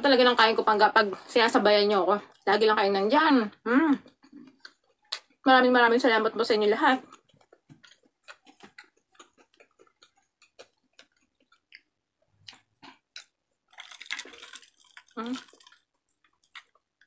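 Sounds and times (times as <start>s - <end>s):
person chewing food: 4.0s - 5.4s, 7.0s - 17.0s.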